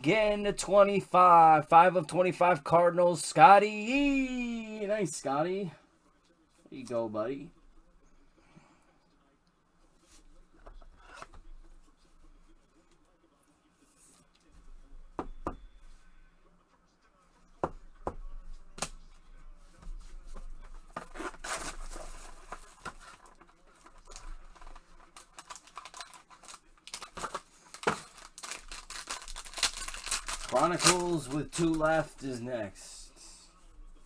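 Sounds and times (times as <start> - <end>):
cards clicking and tapping: 20.9 - 32.2
packaging tearing and crinkling: 21.0 - 32.2.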